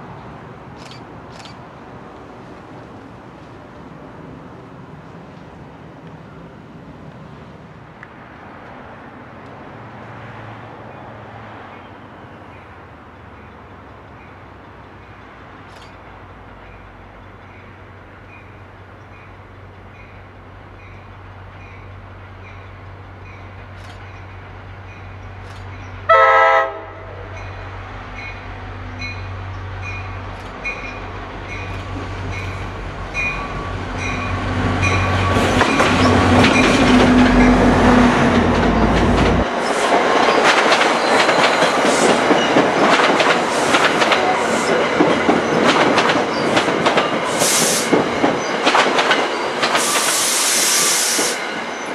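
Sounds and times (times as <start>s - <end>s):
train horn blast: 26.1s - 27.4s
locomotive engine rumble: 27.1s - 48.7s
locomotive bell ringing: 27.3s - 37.6s
train cars clattering over rail joints: 34.8s - 50.3s.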